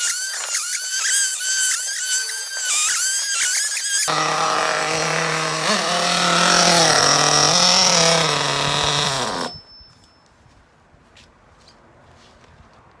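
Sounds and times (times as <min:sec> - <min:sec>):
model nitro engine running: 0:00.0 - 0:09.7.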